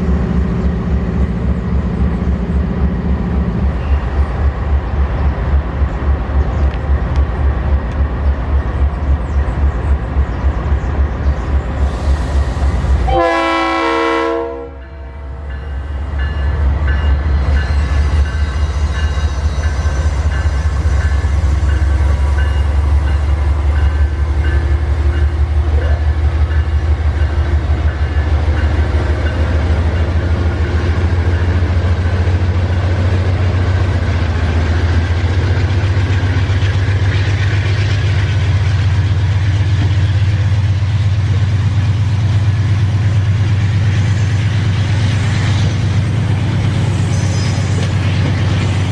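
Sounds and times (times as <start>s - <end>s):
diesel locomotive rumble: 0.0s - 48.9s
locomotive air horn: 13.1s - 15.3s.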